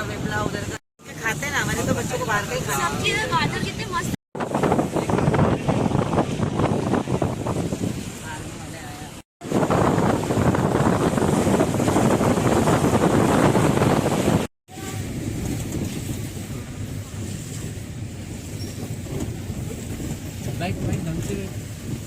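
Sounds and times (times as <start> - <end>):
vehicle road rumble: 0.0 - 22.0
wind buffeting: 0.0 - 22.0.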